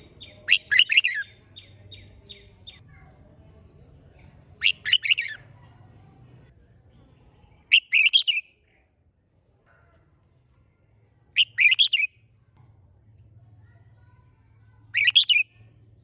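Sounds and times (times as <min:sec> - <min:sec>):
bird warbling song: 0:00.0 - 0:02.8, 0:04.2 - 0:05.4, 0:07.7 - 0:08.5, 0:10.2 - 0:13.0, 0:14.1 - 0:16.0.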